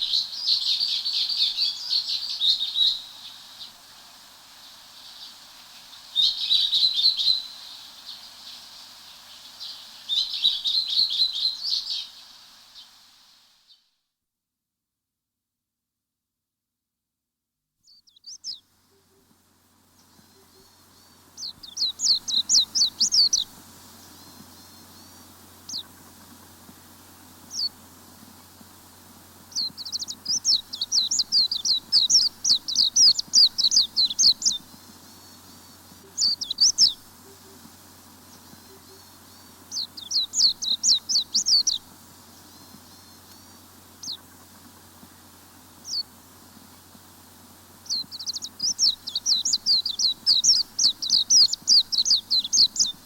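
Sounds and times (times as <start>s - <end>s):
songbird singing: 0.0s - 13.9s, 17.8s - 53.0s.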